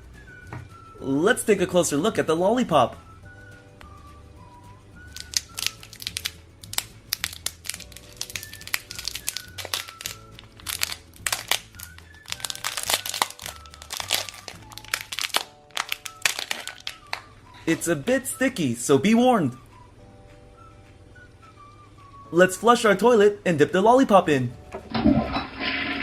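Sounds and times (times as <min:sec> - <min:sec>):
soft background music: 0:00.0 - 0:26.0
plastic wrapper crinkling: 0:05.1 - 0:17.3.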